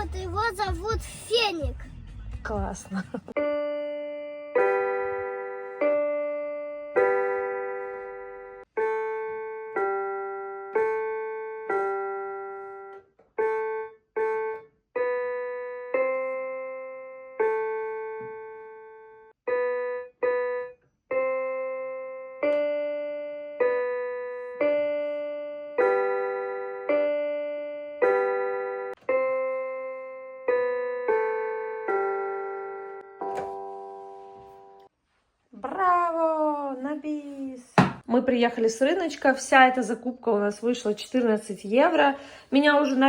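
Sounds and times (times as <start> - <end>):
keyboard melody single notes: 3.4 - 34.9.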